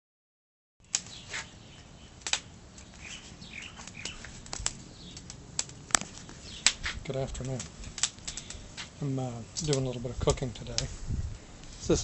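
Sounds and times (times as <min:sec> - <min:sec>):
small birds chirping: 0:00.8 - 0:10.6.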